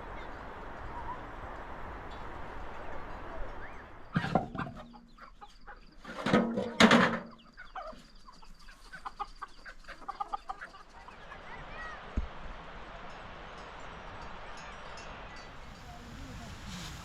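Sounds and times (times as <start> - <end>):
chickens clucking: 2.7 - 11.7
loud chicken calls: 3.6 - 6.2.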